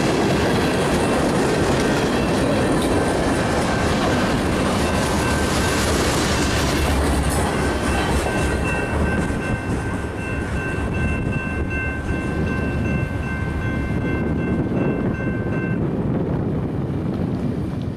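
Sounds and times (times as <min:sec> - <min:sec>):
freight train rumbling past: 0:00.0 - 0:17.9
high-pitched wheel ring: 0:07.5 - 0:15.8.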